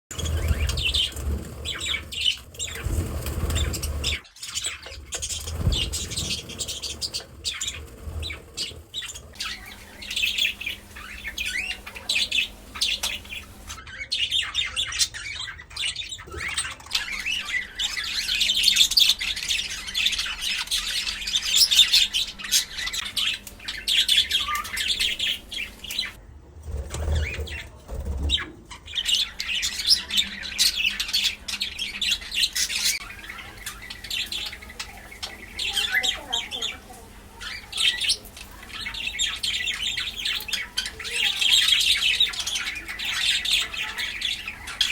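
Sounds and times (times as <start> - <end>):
low bumps: 0.1 - 4.2, 4.9 - 11.5
budgerigar chirping and chattering: 0.2 - 26.2, 28.3 - 44.9.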